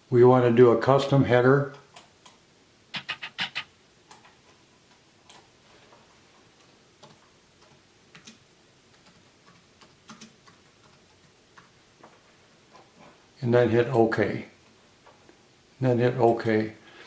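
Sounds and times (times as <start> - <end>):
mouse and keyboard clicks: 2.0 - 4.4.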